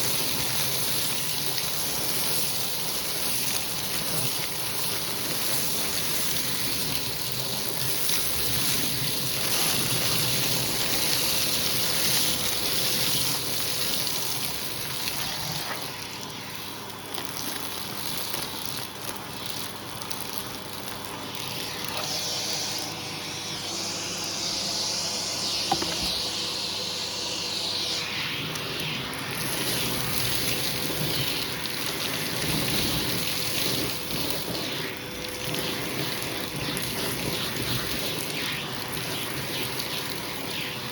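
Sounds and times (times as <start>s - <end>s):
vacuum cleaner suction hiss: 0.0s - 17.1s, 19.7s - 40.9s
vacuum motor whine: 19.8s - 40.9s.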